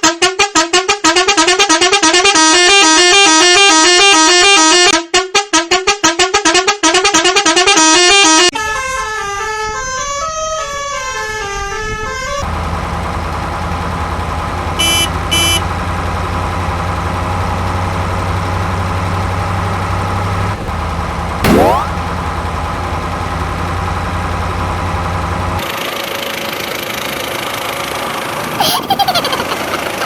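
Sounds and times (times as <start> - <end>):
low engine-like hum: 12.4 - 30.0
electronic musical horn melody: 14.8 - 15.7.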